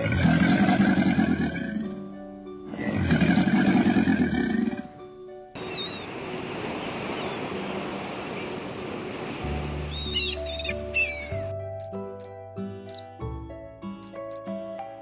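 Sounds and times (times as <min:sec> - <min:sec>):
noisy outdoor ambience: 0:05.6 - 0:11.2.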